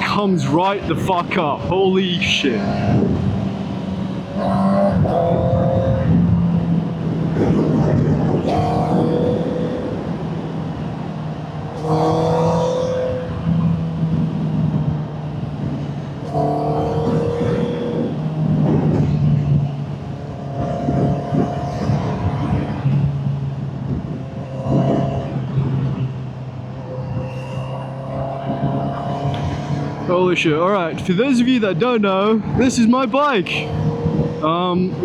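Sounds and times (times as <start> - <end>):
wind rushing: 0.0 - 11.1
motorcycle engine revving: 0.0 - 35.0.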